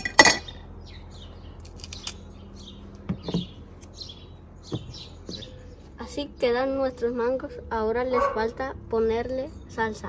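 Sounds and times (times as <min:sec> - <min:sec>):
bird chirping: 0:00.4 - 0:10.0
soft knocks: 0:03.0 - 0:03.6, 0:04.7 - 0:05.6.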